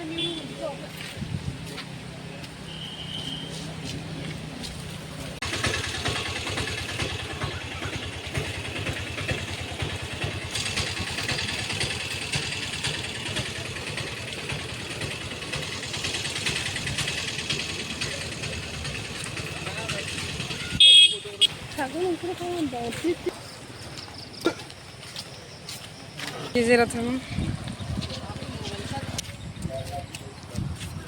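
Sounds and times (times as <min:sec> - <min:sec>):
motorcycle engine running: 0:04.3 - 0:23.5.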